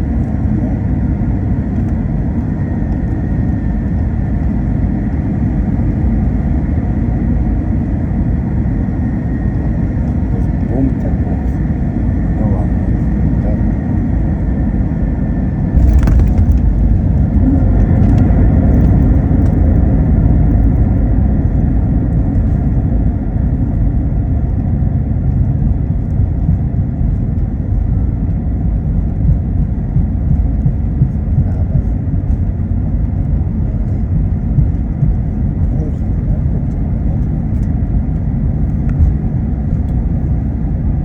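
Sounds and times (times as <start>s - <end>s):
airplane cabin rumble: 0.0s - 41.0s
sharp jolt of aircraft landing: 15.7s - 29.6s.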